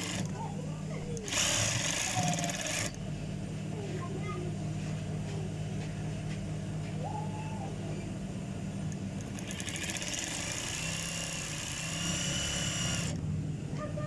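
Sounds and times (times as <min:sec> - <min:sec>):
sewing machine high whirr: 0:00.0 - 0:00.3, 0:01.2 - 0:03.0, 0:09.0 - 0:13.2
sewing machine motor hum: 0:00.0 - 0:03.2, 0:08.0 - 0:13.3.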